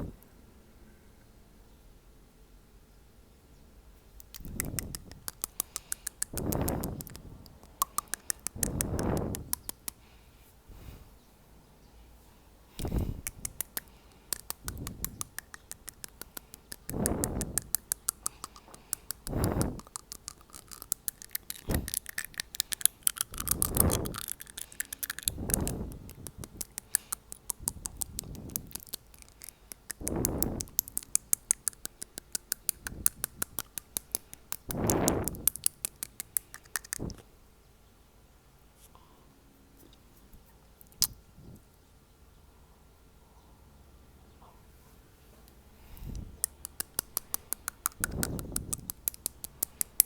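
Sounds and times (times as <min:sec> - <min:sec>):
teeth tapping: 0:04.2 - 0:10.0, 0:12.8 - 0:37.2, 0:46.4 - 0:50.0
breath blown on microphone: 0:04.4 - 0:11.2, 0:12.7 - 0:15.9, 0:16.7 - 0:20.8, 0:21.4 - 0:28.9, 0:29.5 - 0:30.8, 0:34.7 - 0:35.5, 0:45.8 - 0:46.4, 0:47.9 - 0:48.9.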